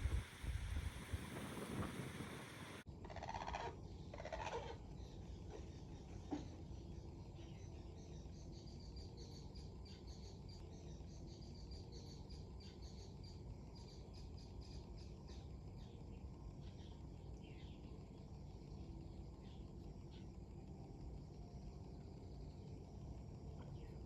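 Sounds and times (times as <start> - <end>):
wind and waves rushing: 0.0 - 2.8.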